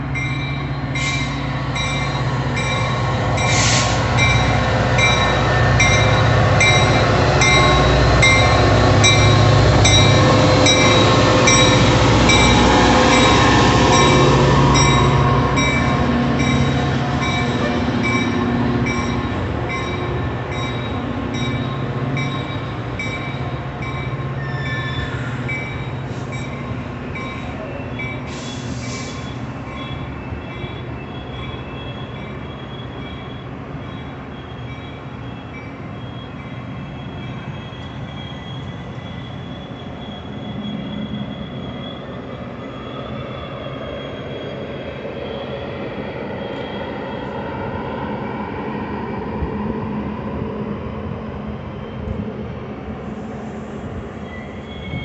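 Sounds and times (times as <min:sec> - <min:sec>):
train wheels rumbling on rail: 0:00.0 - 0:55.0
high wheel squealing: 0:24.2 - 0:45.4, 0:54.1 - 0:55.0.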